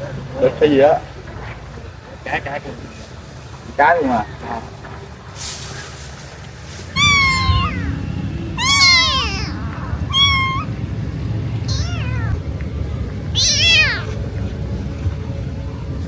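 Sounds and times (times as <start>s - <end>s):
steady low rumble: 6.7s - 16.0s
cat meowing: 6.9s - 10.7s, 11.6s - 12.4s, 13.4s - 14.2s.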